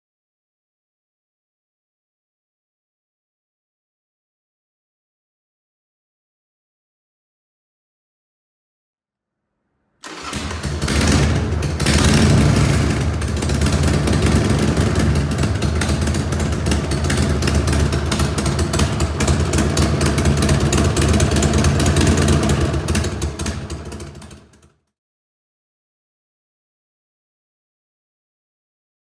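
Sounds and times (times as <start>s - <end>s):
motorcycle engine idling: 10.0s - 24.7s.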